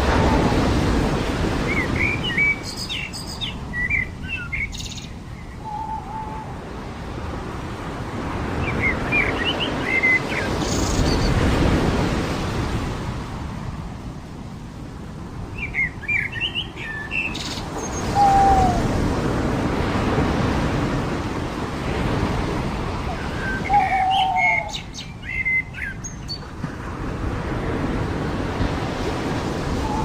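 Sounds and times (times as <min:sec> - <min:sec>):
surf washing onto beach: 0:00.0 - 0:02.6, 0:17.6 - 0:24.8, 0:26.4 - 0:30.0
small birds chirping: 0:15.6 - 0:18.9, 0:23.1 - 0:26.4.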